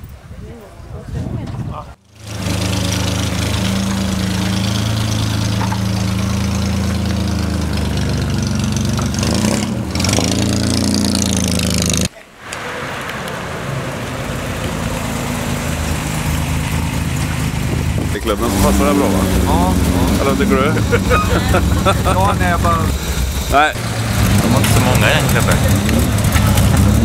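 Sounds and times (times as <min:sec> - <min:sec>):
engine running roughly: 0:02.1 - 0:12.1, 0:14.9 - 0:27.0
sports car engine idling: 0:15.2 - 0:27.0.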